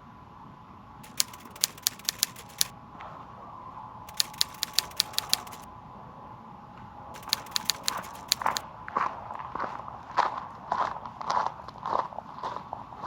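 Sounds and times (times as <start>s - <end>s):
sharp clicks: 1.0s - 2.7s, 4.1s - 5.7s, 7.2s - 8.6s.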